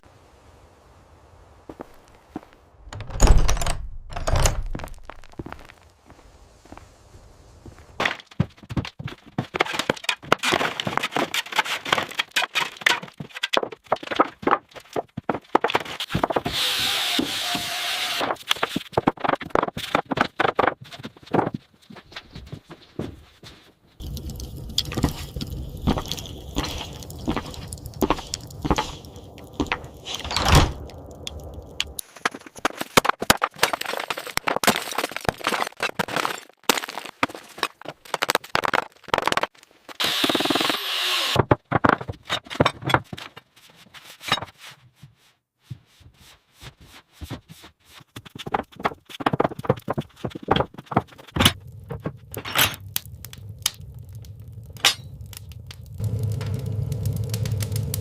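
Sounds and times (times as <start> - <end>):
knocks taps and cracks: 8.0 - 16.5, 48.2 - 56.0
low rumble: 24.0 - 32.0, 52.8 - 58.0.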